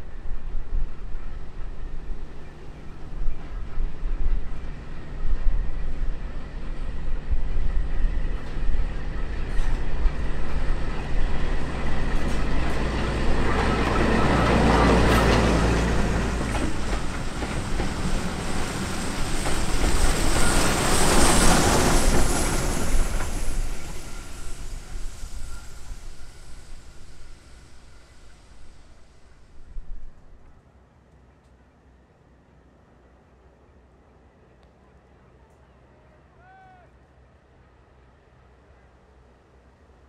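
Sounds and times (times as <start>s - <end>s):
train rushing past: 0.0s - 30.6s
train engine rumble: 0.0s - 40.0s.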